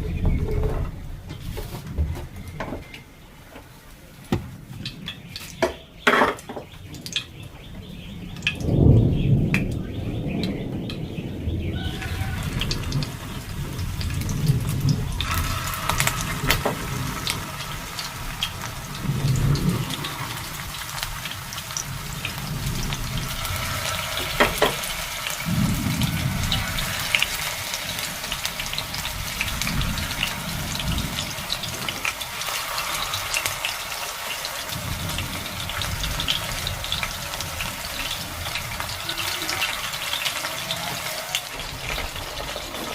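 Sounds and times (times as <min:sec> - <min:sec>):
low rumbles: 0:00.0 - 0:03.4, 0:06.7 - 0:33.9.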